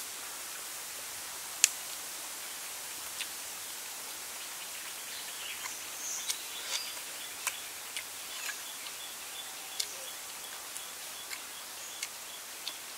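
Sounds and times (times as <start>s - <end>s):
forest insects hiss: 0.0s - 12.9s
man chewing with wet smacks: 5.6s - 9.0s, 9.7s - 12.9s.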